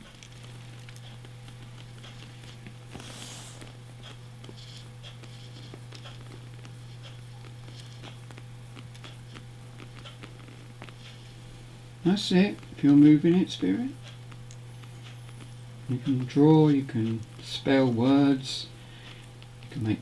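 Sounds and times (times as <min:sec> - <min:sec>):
soft rustles: 0:00.0 - 0:17.5
low electrical hum: 0:00.0 - 0:20.0
faint ticks: 0:03.6 - 0:11.4, 0:12.1 - 0:19.8.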